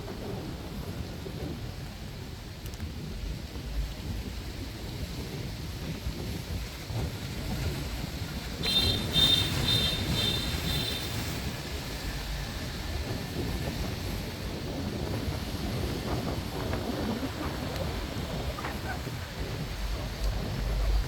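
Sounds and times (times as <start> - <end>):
traffic rumble: 0.0 - 21.0
wind buffeting microphone: 0.0 - 21.0
shrill vehicle horn beeping: 8.6 - 11.5.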